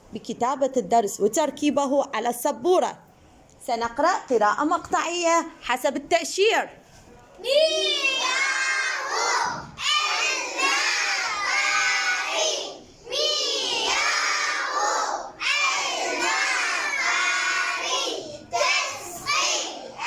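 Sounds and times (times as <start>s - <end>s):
children reading aloud in unison: 7.4s - 20.0s.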